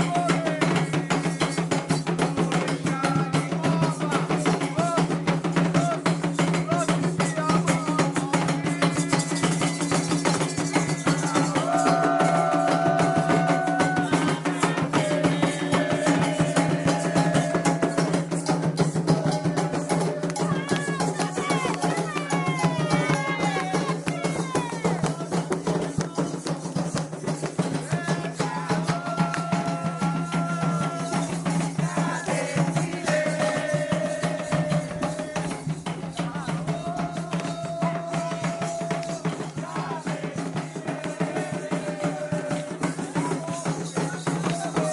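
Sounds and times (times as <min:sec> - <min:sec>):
hand drums fast beat: 0:00.0 - 0:44.9
group chanting: 0:10.5 - 0:25.0, 0:27.9 - 0:43.6.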